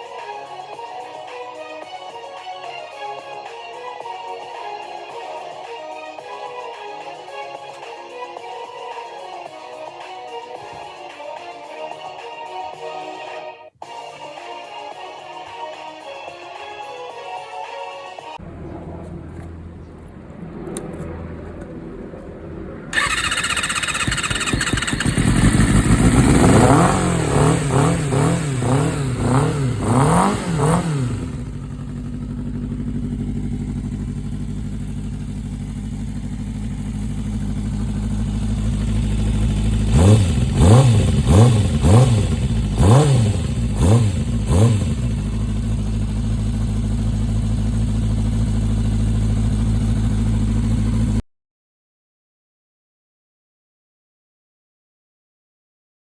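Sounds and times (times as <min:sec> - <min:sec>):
motorcycle engine revving and idling: 0:18.4 - 0:51.2.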